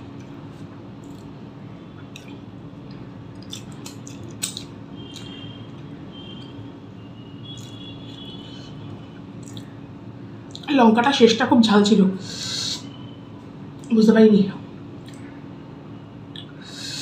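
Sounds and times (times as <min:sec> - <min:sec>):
steady low hum: 0:00.0 - 0:17.0
person chewing food: 0:00.1 - 0:01.4, 0:02.0 - 0:06.5, 0:07.4 - 0:08.3, 0:09.4 - 0:09.8.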